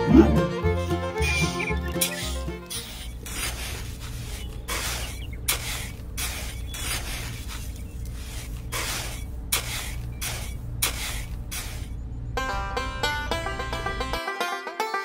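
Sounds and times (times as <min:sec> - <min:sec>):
steady low hum: 0:00.0 - 0:14.2
metal trowel scraping sand: 0:00.8 - 0:12.0.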